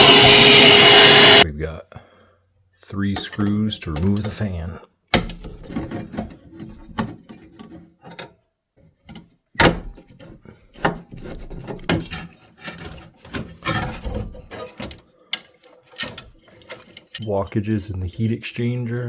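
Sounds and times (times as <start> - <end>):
metal parts clicking and scraping: 12.0 - 18.4.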